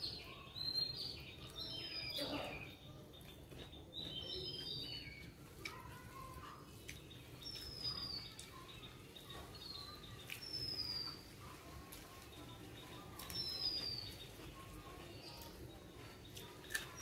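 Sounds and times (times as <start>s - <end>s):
birds chirping whistles: 6.9s - 11.3s, 12.7s - 14.5s.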